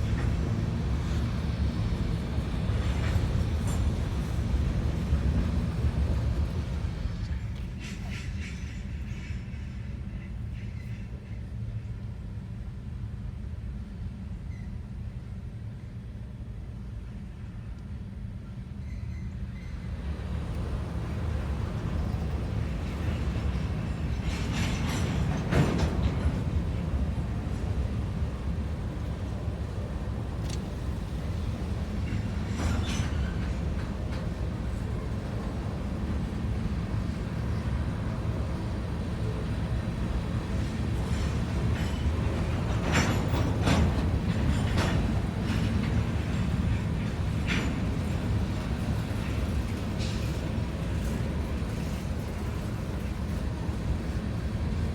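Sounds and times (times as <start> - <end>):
freight train rolling past: 0.0 - 54.9
train clanks and squeals: 0.0 - 54.9.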